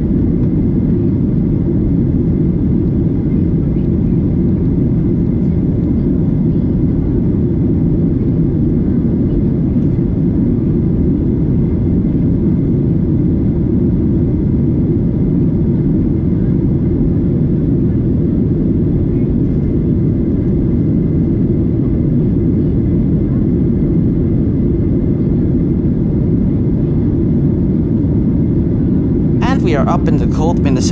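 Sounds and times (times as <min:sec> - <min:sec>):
airplane cabin engine noise: 0:00.0 - 0:30.9.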